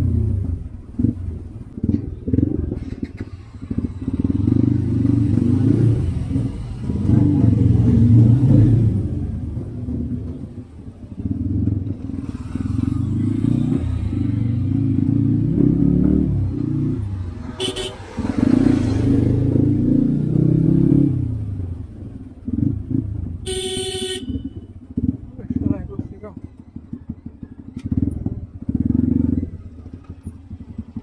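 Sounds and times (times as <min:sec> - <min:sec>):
motorcycle engine running: 0:00.0 - 0:31.0
vehicle horn toot: 0:17.5 - 0:18.1, 0:23.4 - 0:24.8.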